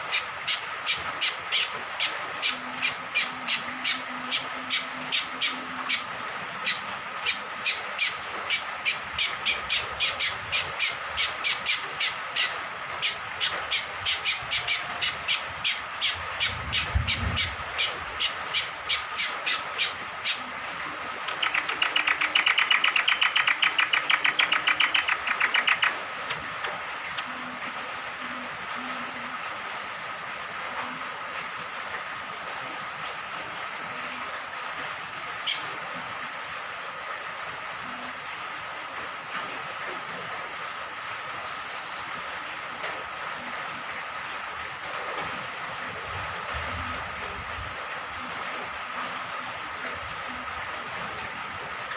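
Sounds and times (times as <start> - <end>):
rain falling: 0.0 - 51.9
bird chattering call: 0.1 - 20.5, 21.3 - 26.0.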